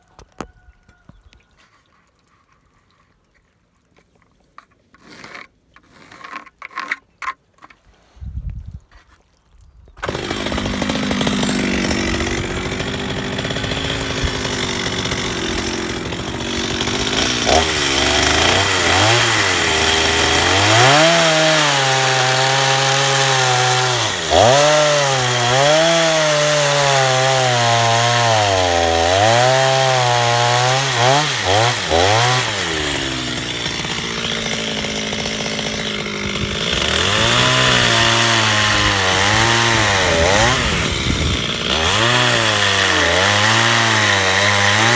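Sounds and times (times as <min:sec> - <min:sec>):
chainsaw cutting log: 0:10.0 - 0:44.9.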